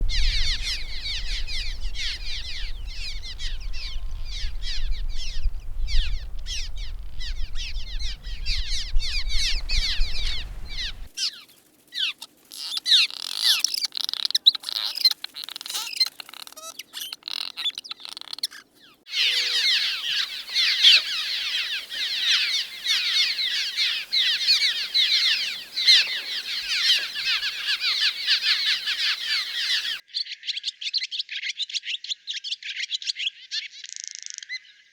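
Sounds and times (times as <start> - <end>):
low rumble: 0.0 - 11.1
swallows twittering: 0.0 - 11.4, 16.8 - 30.0.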